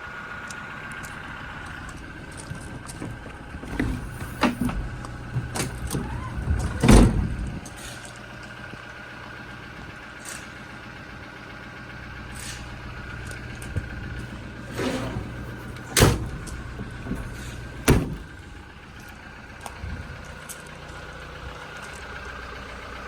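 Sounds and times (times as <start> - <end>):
steady low hum: 0.0 - 10.1, 11.1 - 23.0
tailgate clunking and rattling: 2.0 - 7.9, 13.1 - 20.4
tailgate shutting with a thud: 3.0 - 7.9, 13.6 - 19.2.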